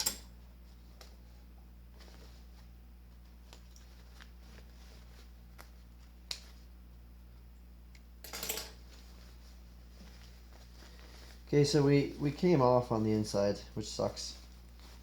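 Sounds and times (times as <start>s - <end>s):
steady low hum: 0.0s - 15.0s
fabric rustling: 0.4s - 6.8s, 8.8s - 15.0s.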